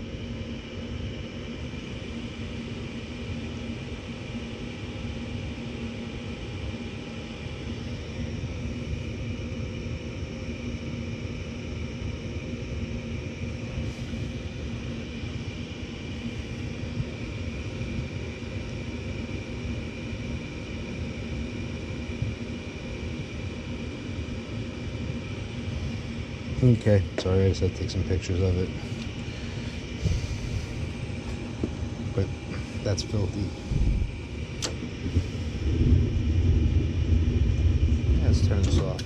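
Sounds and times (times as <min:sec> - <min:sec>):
furnace fan motor humming: 0:00.0 - 0:39.0
low rumble of moving air: 0:12.8 - 0:39.0.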